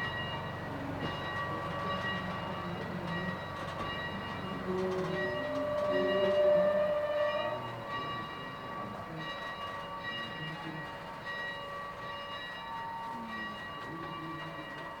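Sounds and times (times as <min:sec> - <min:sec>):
steam train running: 0:00.0 - 0:15.0
steam whistle: 0:05.4 - 0:07.6.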